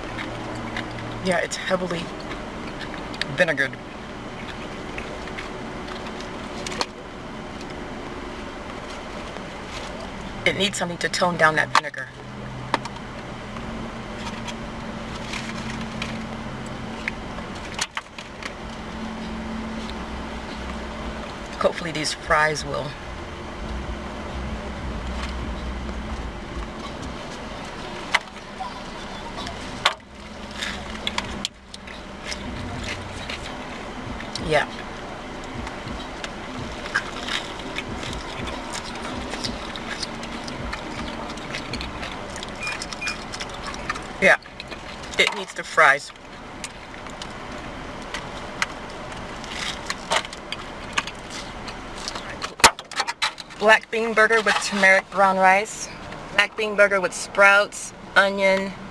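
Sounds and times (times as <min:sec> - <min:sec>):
chewing and eating: 0:00.0 - 0:01.2, 0:01.9 - 0:10.4, 0:22.9 - 0:45.2, 0:46.1 - 0:53.6
low background rumble: 0:00.0 - 0:58.9
steady low hum: 0:00.0 - 0:58.9.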